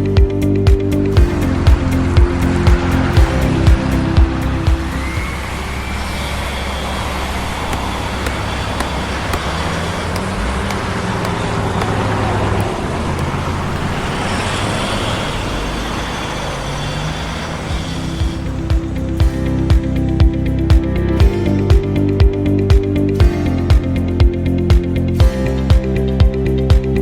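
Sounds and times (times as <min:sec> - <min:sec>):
road traffic rushing: 0:00.4 - 0:21.2.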